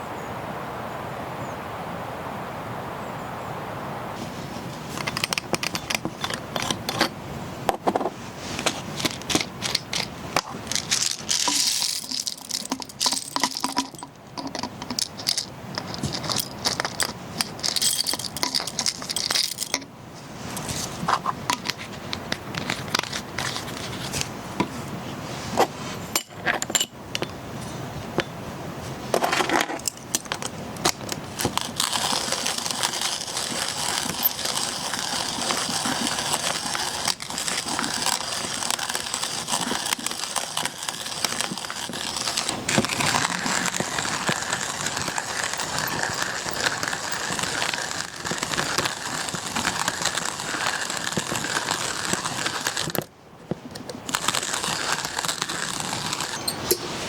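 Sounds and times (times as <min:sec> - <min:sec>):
crinkling: 0:04.2 - 0:07.2, 0:07.8 - 0:26.6, 0:29.1 - 0:57.0
sharp clicks and rattles: 0:05.0 - 0:07.1, 0:08.6 - 0:19.9, 0:29.2 - 0:56.8.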